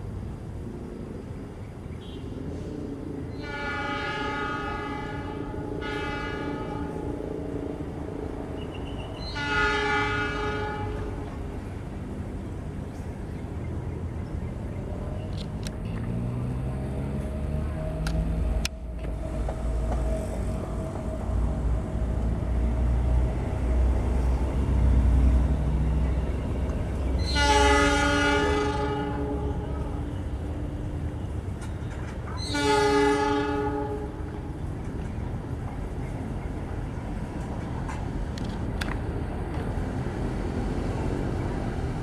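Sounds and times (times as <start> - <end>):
locomotive engine rumbling: 0.0 - 42.0
train horn blasts: 3.3 - 11.8, 17.4 - 34.8.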